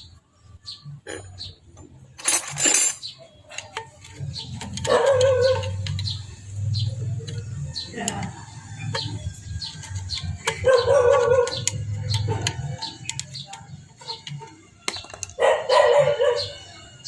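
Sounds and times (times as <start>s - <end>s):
small birds chirping: 0.0s - 2.2s, 3.0s - 17.0s
drawn-out wavering animal calls: 4.2s - 14.7s.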